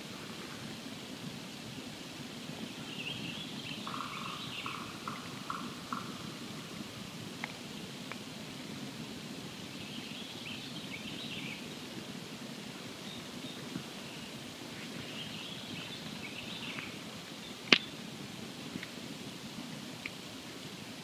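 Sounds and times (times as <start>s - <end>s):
campfire burning: 5.2s - 10.4s, 11.4s - 21.0s.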